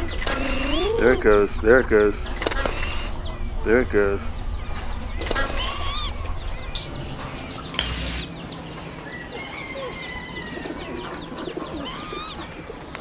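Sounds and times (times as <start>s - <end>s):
pigeons cooing: 0.0s - 13.0s
small birds chirping: 0.0s - 13.0s
sharp click: 7.7s - 8.3s.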